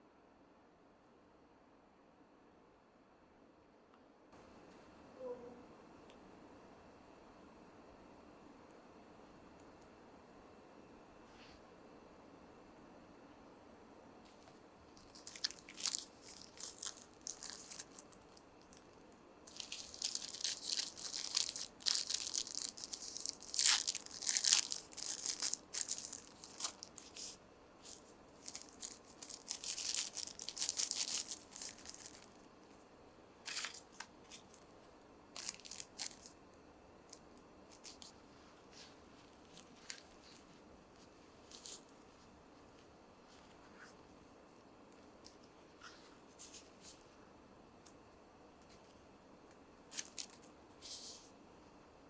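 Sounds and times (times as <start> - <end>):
packaging rustling and crinkling: 14.3 - 32.8, 33.4 - 36.4, 37.1 - 44.2, 49.9 - 51.3.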